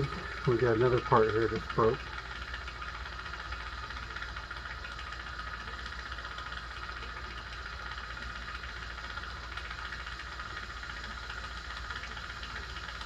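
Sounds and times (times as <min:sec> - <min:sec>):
low machine drone: 0:00.0 - 0:07.4
high machine whirr: 0:00.0 - 0:13.0.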